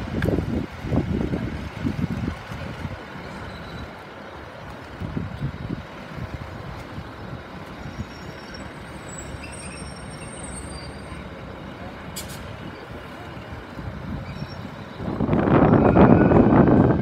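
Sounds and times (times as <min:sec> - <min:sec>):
distant train rumble: 0:00.0 - 0:17.0
faint high squeals: 0:07.9 - 0:11.2, 0:14.2 - 0:14.8.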